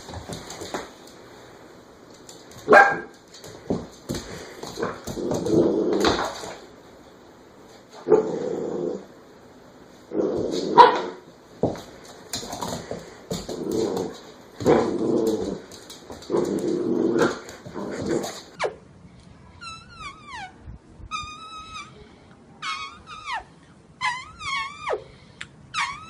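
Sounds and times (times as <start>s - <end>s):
dog growling and barking: 8.0s - 9.1s, 13.5s - 15.7s, 16.3s - 18.5s.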